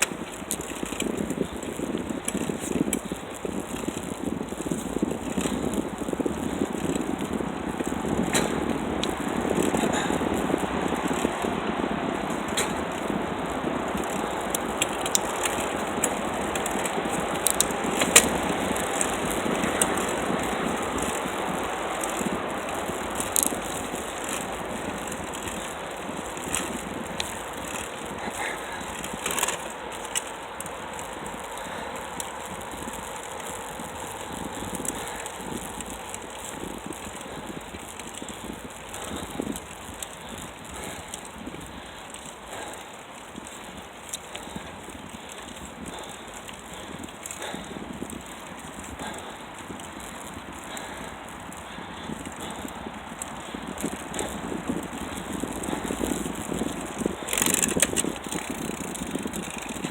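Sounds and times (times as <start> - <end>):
bicycle tyre noise and wind: 0.0 - 59.9
bike parts rattling: 0.0 - 59.9.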